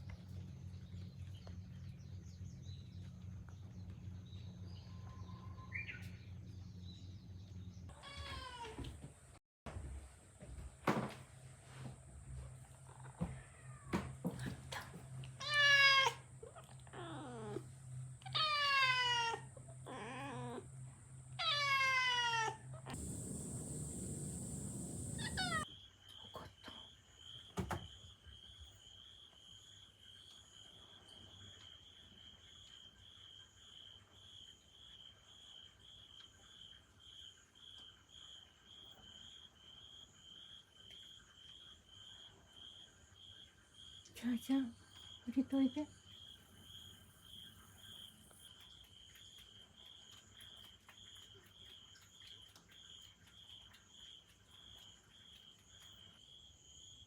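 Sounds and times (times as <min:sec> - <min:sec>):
cat yowling: 0:18.2 - 0:20.6, 0:21.4 - 0:23.3, 0:24.9 - 0:25.6
cat hissing: 0:21.4 - 0:25.6.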